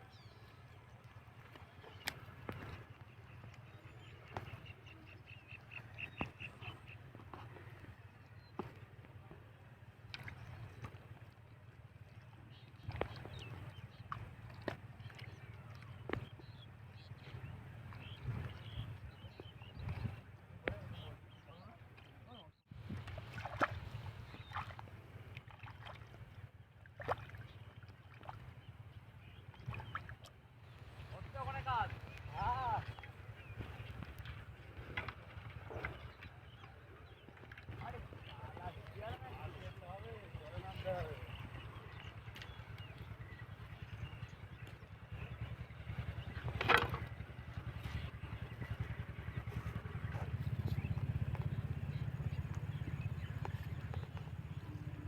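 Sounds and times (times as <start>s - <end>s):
water sloshing and splashing: 0.3s - 55.0s
steady low rumble: 37.8s - 55.0s.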